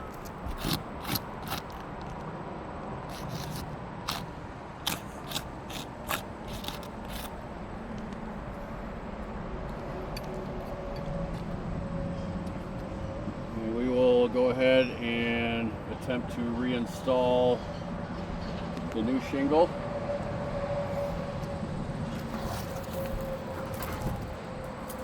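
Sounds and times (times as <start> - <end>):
marker scratching on shingles: 0.0 - 2.2, 3.1 - 7.4
outdoor background noise: 0.0 - 25.0.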